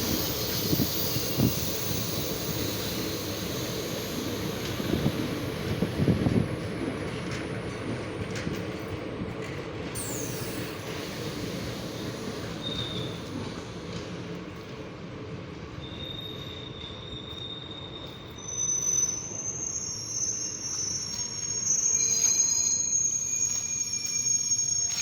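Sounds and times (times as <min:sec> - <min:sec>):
high squeals: 0:00.0 - 0:06.1, 0:15.8 - 0:25.0
train wheels rumbling on rails: 0:00.0 - 0:25.0.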